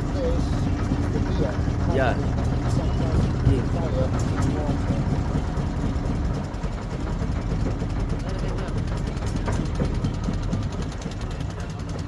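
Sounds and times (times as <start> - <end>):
boat motor rumbling: 0.0 - 12.0.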